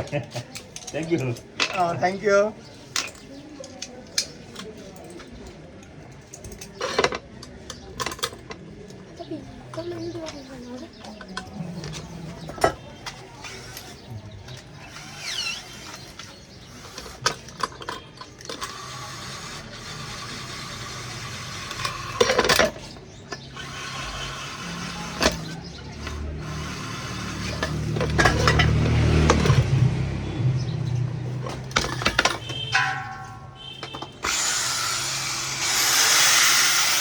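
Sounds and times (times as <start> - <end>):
sharp knocks and clanks: 25.2 - 37.0
machine running: 32.5 - 37.0.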